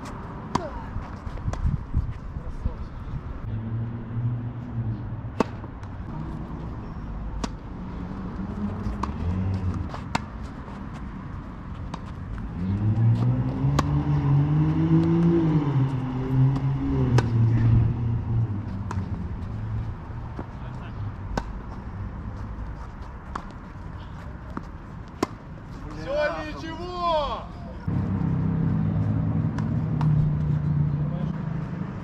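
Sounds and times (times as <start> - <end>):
rackets hitting tennis balls: 0.0 - 1.7, 5.3 - 6.4, 7.1 - 26.0, 29.4 - 30.7.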